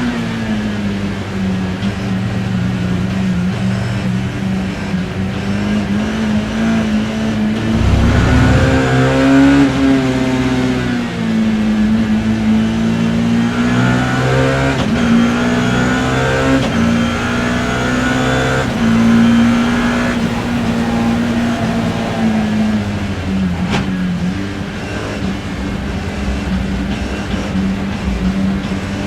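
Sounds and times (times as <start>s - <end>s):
racing car engine revving: 7.4s - 10.6s, 13.5s - 24.3s.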